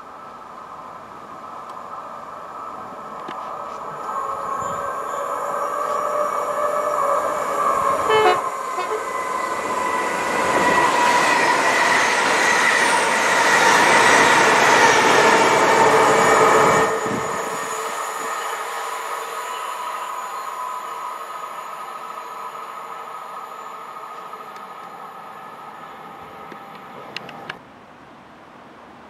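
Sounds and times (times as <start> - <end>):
train wheels rumbling on rail: 2.7 - 21.9.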